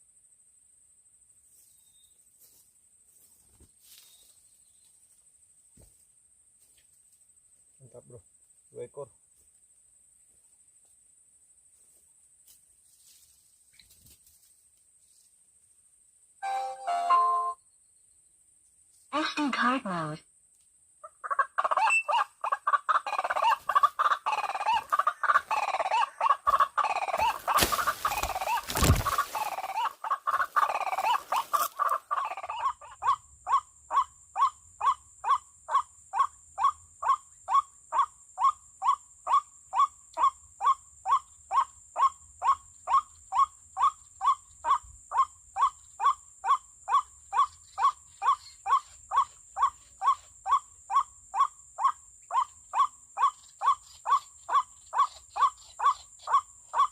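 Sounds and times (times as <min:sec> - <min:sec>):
bird croaking calls from speaker: 0:24.1 - 0:33.0.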